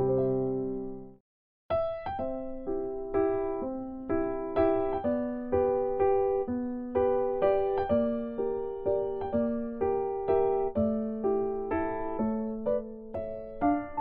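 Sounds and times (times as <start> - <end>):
gentle electric piano melody: 0.0 - 14.0.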